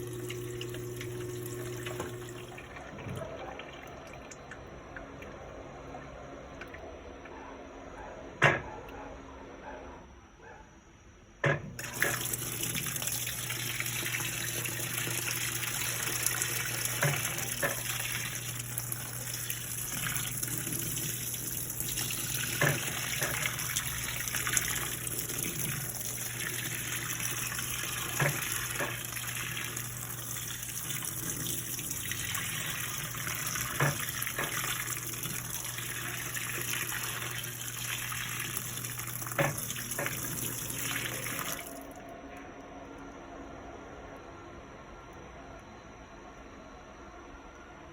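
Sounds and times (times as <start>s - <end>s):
washing machine filling with water: 0.0s - 7.4s, 11.4s - 42.1s.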